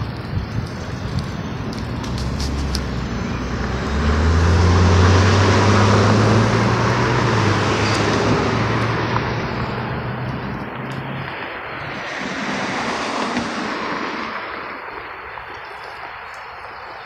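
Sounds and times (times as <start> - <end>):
car driving past: 1.9 - 15.4.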